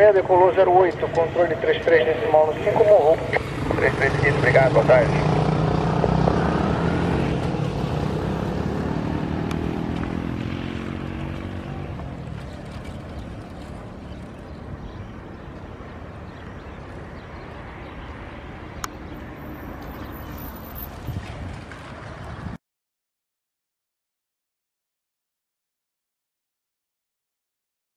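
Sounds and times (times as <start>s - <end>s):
jet engines at takeoff: 0.0s - 5.2s.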